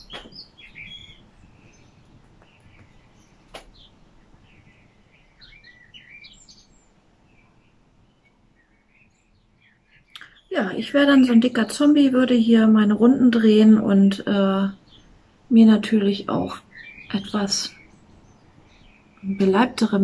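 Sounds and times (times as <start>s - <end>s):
faint bird chirps: 0.0s - 11.6s, 16.3s - 20.0s.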